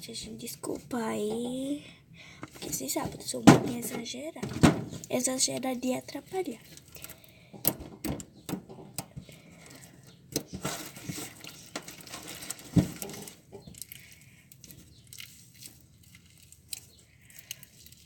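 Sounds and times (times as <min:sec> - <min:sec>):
sticky slime clicks and crackles: 0:13.7 - 0:18.0.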